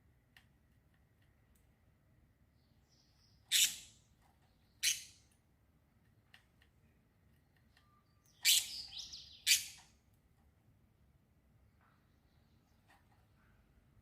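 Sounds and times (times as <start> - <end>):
small bird chirping: 2.4 - 5.4, 7.5 - 10.0, 11.8 - 13.4.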